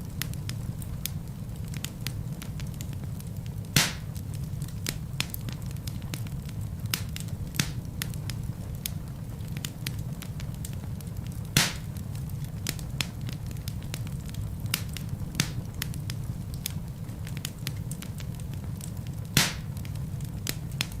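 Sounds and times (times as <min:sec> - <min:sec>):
wood fire crackling: 0:00.0 - 0:21.0
logs popping: 0:03.8 - 0:04.2, 0:11.6 - 0:12.0, 0:19.4 - 0:21.0.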